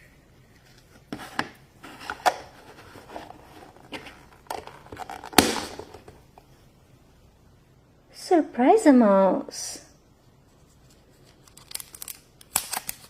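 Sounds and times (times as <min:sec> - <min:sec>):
plastic packaging crinkling: 0:11.2 - 0:13.0.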